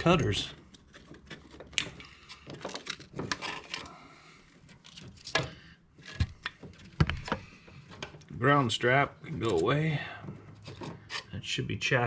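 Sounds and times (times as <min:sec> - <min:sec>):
hand tools clicking and knocking: 0:00.0 - 0:03.9.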